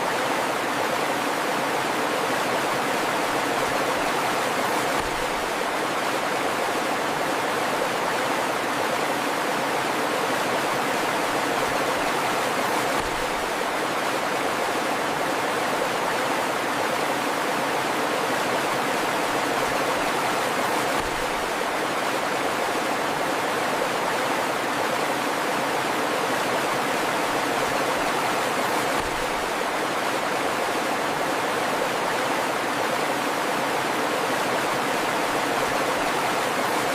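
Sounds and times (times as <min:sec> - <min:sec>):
river flowing: 0:00.0 - 0:36.9.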